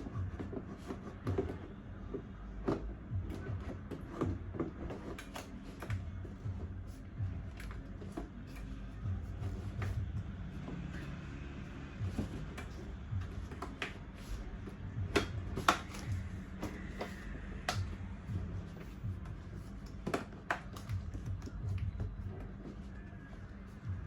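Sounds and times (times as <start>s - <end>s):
plastic parts knocking and clicking: 12.0s - 22.8s.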